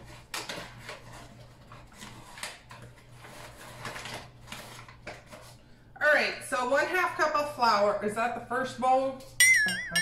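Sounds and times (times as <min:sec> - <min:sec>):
paper bag rustling: 0:00.0 - 0:05.6.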